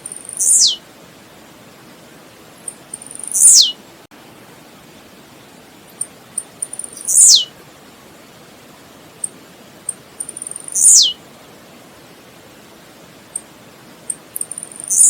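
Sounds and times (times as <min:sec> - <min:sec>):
bird singing: 0:00.0 - 0:00.8, 0:02.6 - 0:03.8, 0:06.4 - 0:07.5, 0:10.2 - 0:11.2, 0:14.1 - 0:15.0
background hiss: 0:00.0 - 0:15.0.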